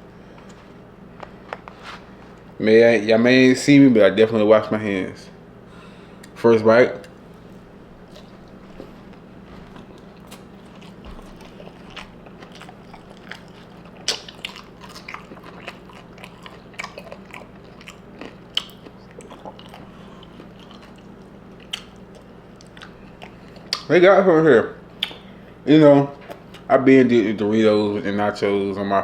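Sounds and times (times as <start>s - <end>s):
steady low hum: 0.0s - 29.0s
person chewing crunchy chips: 7.4s - 23.9s.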